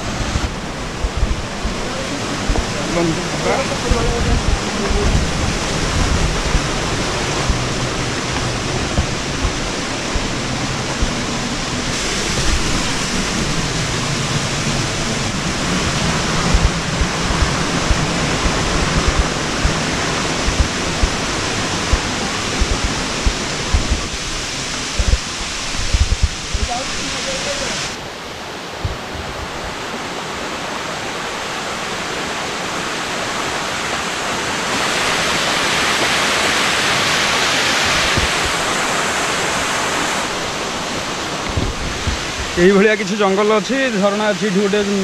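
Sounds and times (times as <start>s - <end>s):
waterfall rushing: 0.0s - 45.0s
low thuds: 0.3s - 14.0s, 14.9s - 27.0s, 28.8s - 29.4s, 40.9s - 42.6s.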